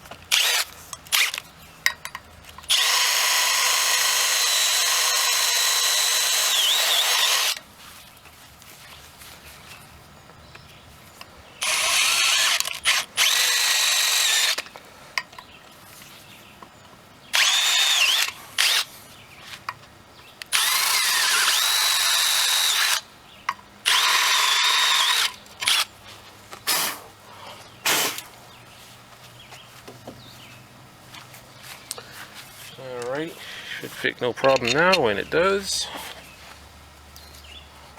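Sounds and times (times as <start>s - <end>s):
power drill whining: 0.3s - 1.4s, 2.7s - 7.6s, 11.6s - 14.6s, 17.4s - 18.9s, 20.5s - 23.0s, 23.9s - 25.9s.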